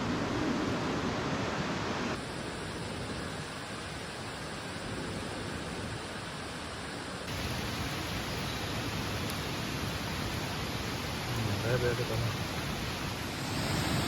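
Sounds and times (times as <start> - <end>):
steady outdoor rushing noise: 0.0 - 14.0.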